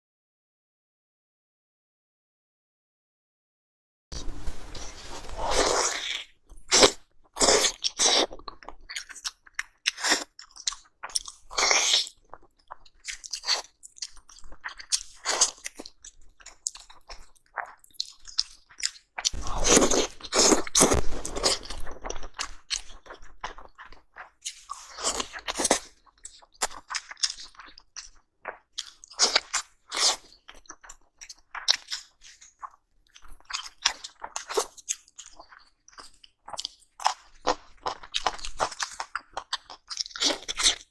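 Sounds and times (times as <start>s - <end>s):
person biting and chewing: 19.3s - 22.9s.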